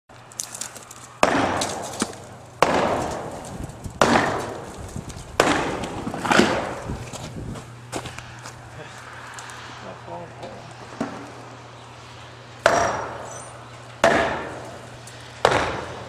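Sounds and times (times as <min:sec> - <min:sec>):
sledgehammer striking wall: 0:01.2 - 0:06.9, 0:12.6 - 0:13.3, 0:14.0 - 0:14.8, 0:15.4 - 0:16.0.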